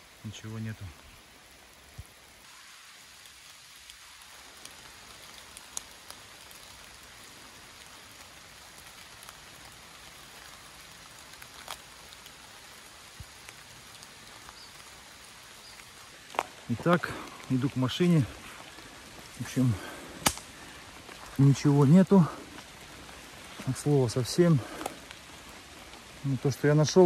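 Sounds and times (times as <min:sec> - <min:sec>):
rain falling on foliage: 0:00.0 - 0:27.0
single raindrop ticks: 0:04.6 - 0:06.8, 0:20.2 - 0:20.7.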